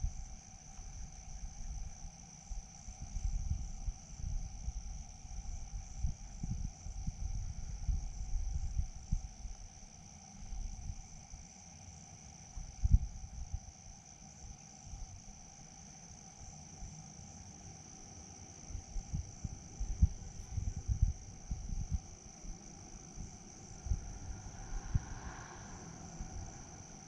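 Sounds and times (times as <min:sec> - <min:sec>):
crickets chirping: 0:00.0 - 0:27.0.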